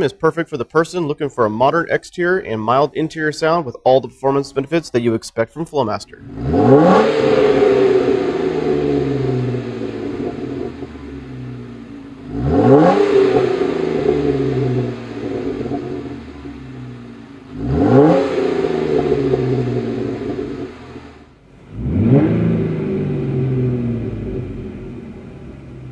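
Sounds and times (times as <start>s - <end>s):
car engine revving: 6.2s - 25.9s.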